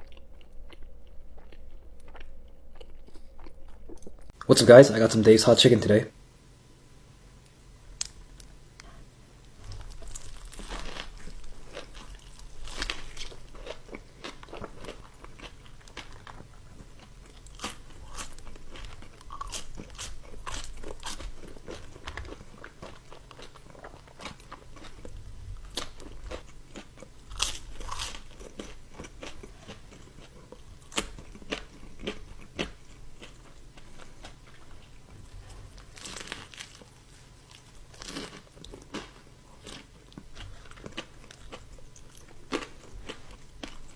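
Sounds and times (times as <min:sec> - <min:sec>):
person chewing: 0:00.0 - 0:04.4, 0:08.0 - 0:43.9
crunching fried chicken: 0:09.4 - 0:43.9.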